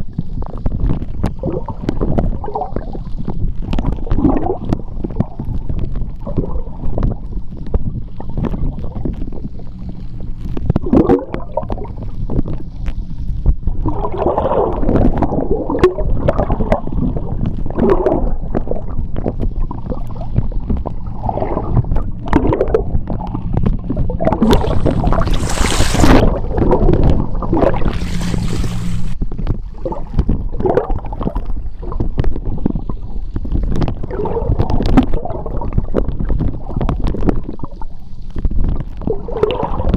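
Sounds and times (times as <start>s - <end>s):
underwater rumbling wash: 0.1s - 37.8s
gurgling bubbles: 0.1s - 37.9s
faint low hum: 5.3s - 14.4s, 17.2s - 29.2s
hissing rushes of bubbles: 24.4s - 29.2s
underwater clicks: 24.4s - 29.2s.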